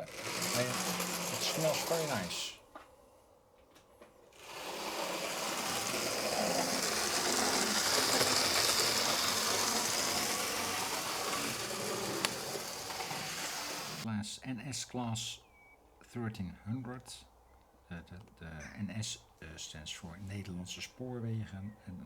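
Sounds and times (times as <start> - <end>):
model train motor whirring: 0.0 - 2.6, 4.2 - 14.1
wheels hissing on rails: 0.0 - 2.6, 4.4 - 14.1.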